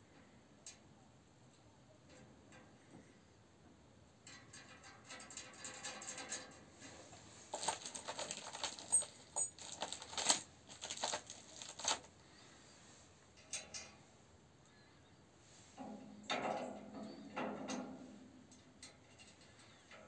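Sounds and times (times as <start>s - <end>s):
light rustling: 6.8s - 12.5s.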